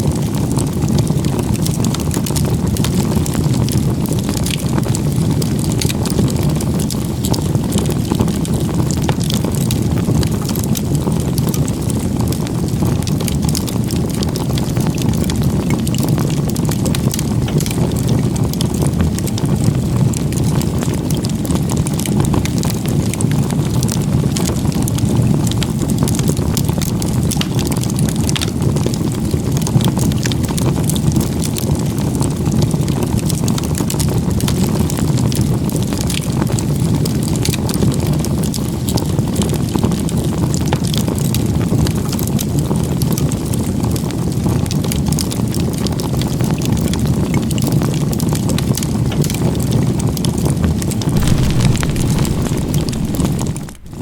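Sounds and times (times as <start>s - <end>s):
low even rush: 51.2s - 54.0s.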